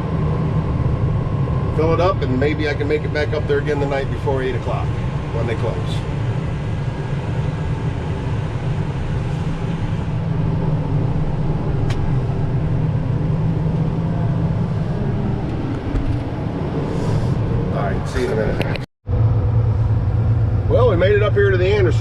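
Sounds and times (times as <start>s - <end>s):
heavy vehicle engine rumble: 0.0s - 22.0s.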